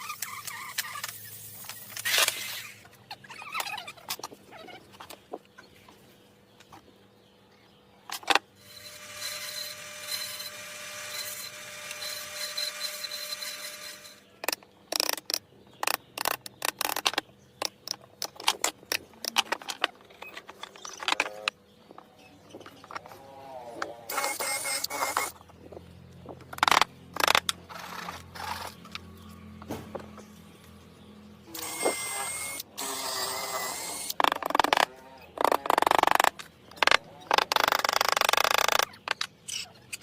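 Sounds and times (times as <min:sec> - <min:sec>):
power tool motor running: 0:08.6 - 0:14.3, 0:24.1 - 0:25.4, 0:31.5 - 0:34.8
sharp knocks and clicks: 0:14.4 - 0:23.1, 0:25.0 - 0:27.6, 0:34.2 - 0:39.4.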